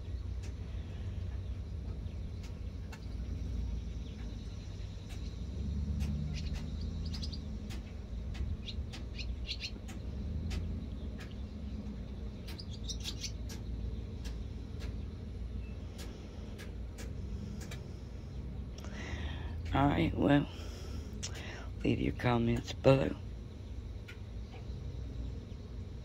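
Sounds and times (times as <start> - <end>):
birds chirping: 0.0 - 26.0
steady low rumble: 0.0 - 26.0
sharp clicks: 5.0 - 11.4, 16.0 - 17.9.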